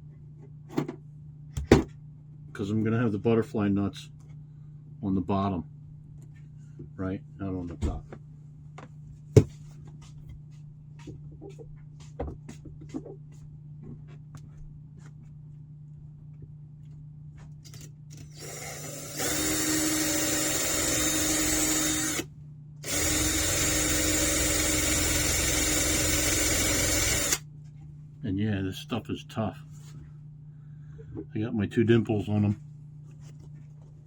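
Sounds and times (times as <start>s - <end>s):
power drill boring into metal: 18.2s - 27.4s.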